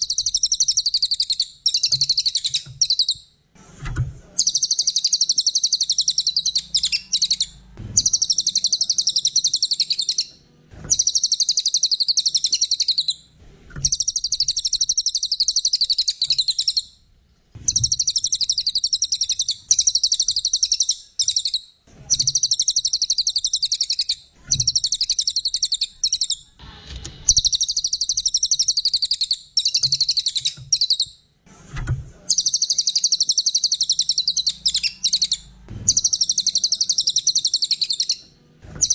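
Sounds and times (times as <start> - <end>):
songbird chattering song: 0.0 - 3.3, 4.4 - 10.3, 10.9 - 13.2, 13.8 - 17.0, 17.6 - 26.5, 27.3 - 31.2, 32.3 - 38.2.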